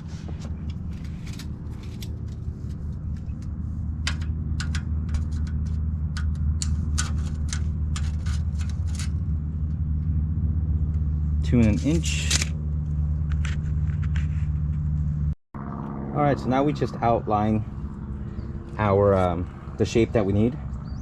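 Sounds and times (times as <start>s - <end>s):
cardboard and sheet metal handled: 0.0s - 9.3s, 11.5s - 12.6s
low mechanical hum: 0.0s - 21.0s.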